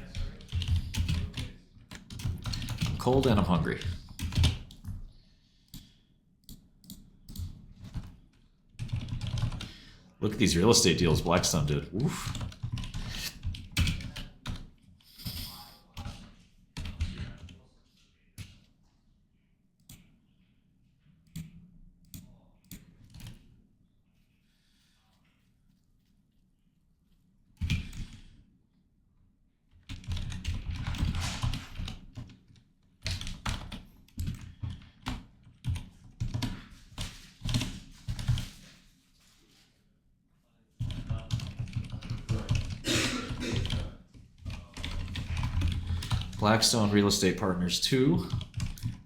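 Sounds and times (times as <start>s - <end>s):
typing on keyboard: 0.0s - 5.1s, 5.7s - 9.7s, 12.1s - 14.8s, 16.0s - 17.6s, 21.3s - 23.5s, 29.7s - 38.6s, 40.8s - 46.5s, 48.2s - 49.0s.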